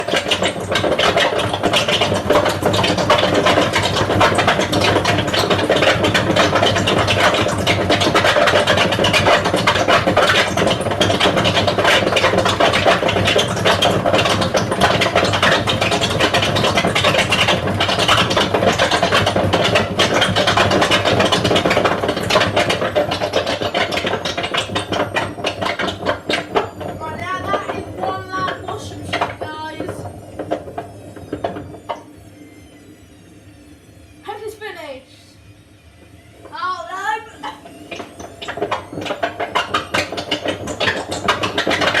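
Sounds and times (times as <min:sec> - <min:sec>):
drum clicking and rattling: 0:00.0 - 0:32.0, 0:36.4 - 0:42.0
washing machine spin cycle: 0:00.0 - 0:42.0
high whine: 0:14.9 - 0:42.0.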